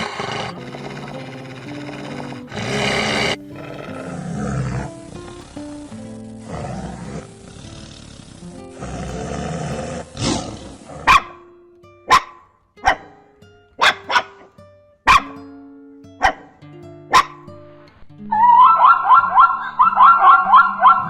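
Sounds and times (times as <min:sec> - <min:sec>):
rough noisy animal sound: 0:00.0 - 0:11.3, 0:18.4 - 0:21.0
background music with held notes: 0:00.0 - 0:21.0
short sharp barking calls: 0:11.0 - 0:11.4, 0:15.1 - 0:15.4, 0:18.4 - 0:21.0.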